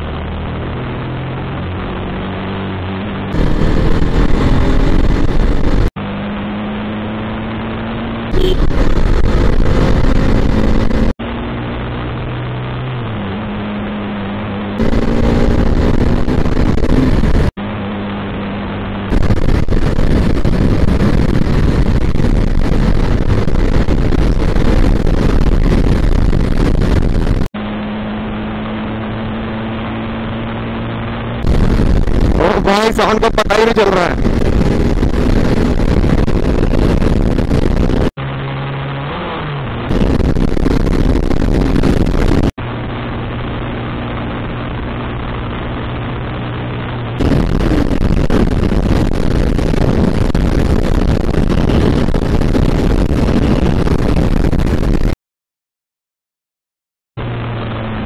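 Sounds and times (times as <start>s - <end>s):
wind on microphone: 0.0s - 5.9s, 8.3s - 11.2s, 14.7s - 17.6s, 19.1s - 27.5s, 28.4s - 33.1s, 34.0s - 38.2s, 39.2s - 55.2s
motorcycle engine revving: 0.0s - 55.2s.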